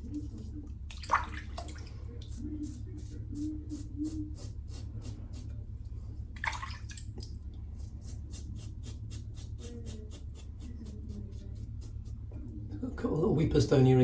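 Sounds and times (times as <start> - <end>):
razor scraping stubble: 7.7 - 12.4.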